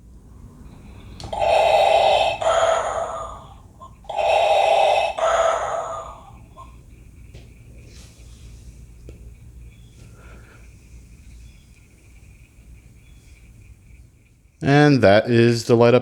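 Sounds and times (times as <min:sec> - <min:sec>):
toy lightsaber sound effects: 0:01.0 - 0:06.6.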